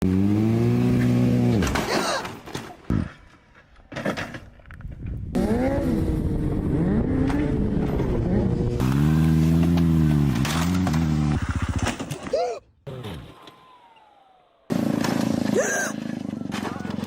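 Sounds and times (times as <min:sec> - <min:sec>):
motorcycle engine running: 0:05.2 - 0:12.3, 0:12.9 - 0:17.0.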